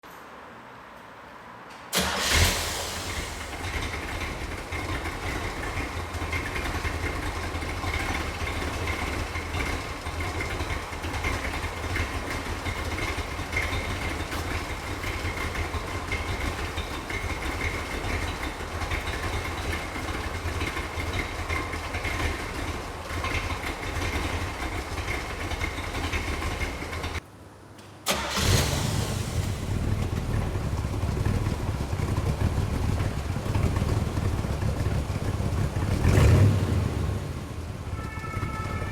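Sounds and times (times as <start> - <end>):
engine starting: 1.9 - 6.4, 28.0 - 30.1
car engine idling: 1.9 - 27.2, 28.1 - 38.9.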